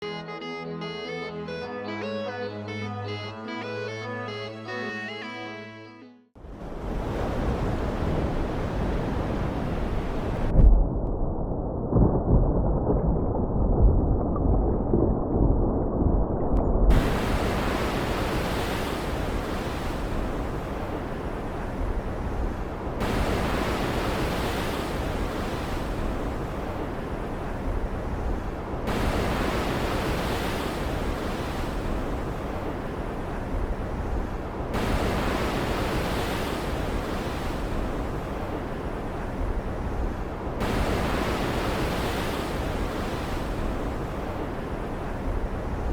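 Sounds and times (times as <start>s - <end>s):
ocean waves: 6.4s - 10.5s, 16.9s - 45.9s
low thunder rumble: 10.4s - 17.8s.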